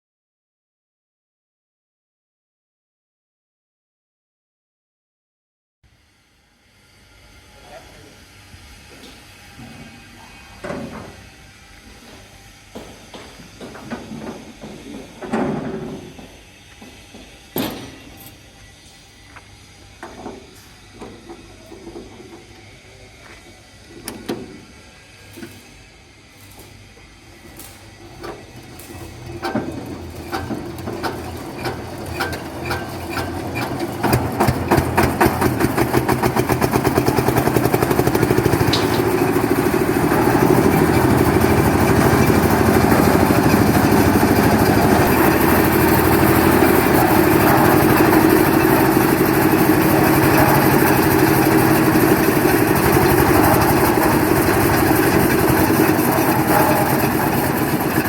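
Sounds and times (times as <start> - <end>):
diesel engine starting and running: 28.2 - 58.0.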